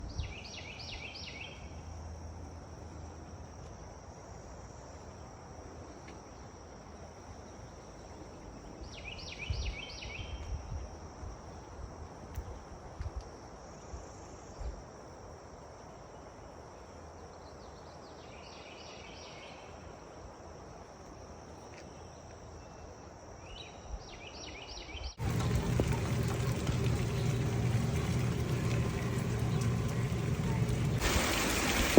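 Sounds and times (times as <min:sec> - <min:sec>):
insect drone: 0:25.2 - 0:31.9
outdoor air hiss: 0:25.2 - 0:31.9.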